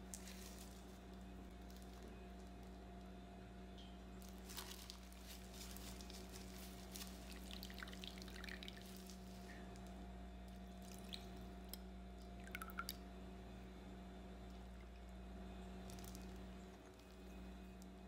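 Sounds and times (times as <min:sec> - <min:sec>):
small crackles: 0:00.0 - 0:03.2, 0:04.2 - 0:12.4, 0:14.4 - 0:18.0
faint steady hum: 0:00.0 - 0:18.0
onion juice squishing and dripping: 0:07.1 - 0:09.8, 0:10.6 - 0:13.0.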